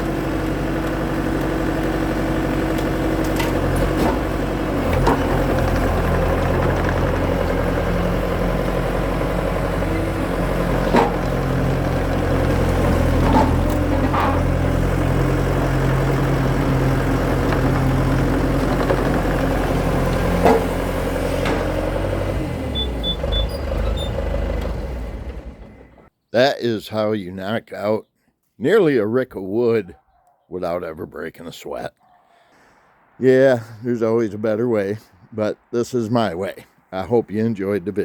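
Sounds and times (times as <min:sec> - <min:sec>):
skid steer engine running: 0:00.0 - 0:26.1.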